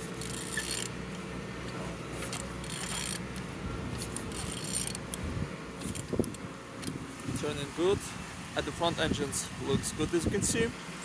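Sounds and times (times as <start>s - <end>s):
engine turned over by hand: 0.0s - 7.3s
steady low hum: 0.0s - 11.0s.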